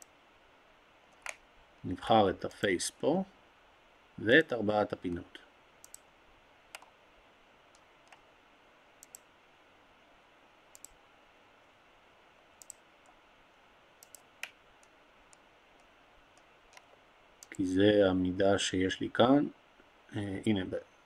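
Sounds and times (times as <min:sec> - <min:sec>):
faint steady hiss: 0:00.0 - 0:21.0
computer mouse clicking: 0:01.1 - 0:01.4, 0:05.8 - 0:06.0, 0:06.7 - 0:06.9, 0:07.7 - 0:08.2, 0:09.0 - 0:09.3, 0:10.7 - 0:11.0, 0:12.6 - 0:13.2, 0:14.0 - 0:17.6.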